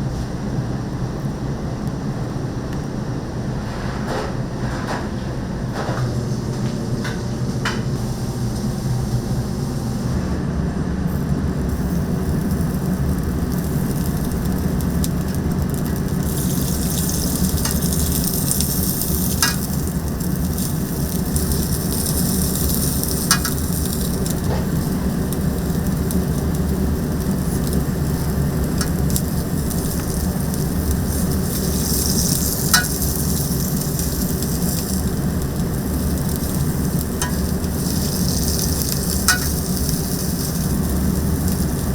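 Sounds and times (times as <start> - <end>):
chicken sizzling: 8.0 - 10.2, 11.0 - 41.9.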